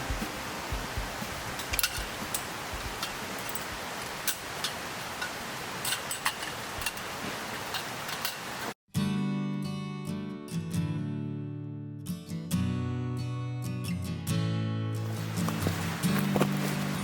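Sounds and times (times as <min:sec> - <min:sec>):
campfire crackling and popping: 0:00.0 - 0:05.4, 0:15.1 - 0:17.0
steady fire hiss: 0:00.0 - 0:08.8, 0:15.0 - 0:17.0.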